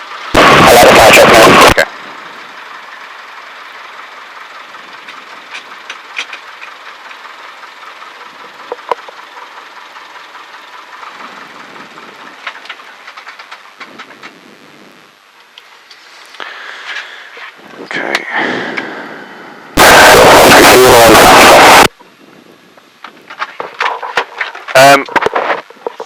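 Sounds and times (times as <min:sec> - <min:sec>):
small clicks and ticks: 0:12.4 - 0:14.4
steady hiss: 0:12.8 - 0:19.8.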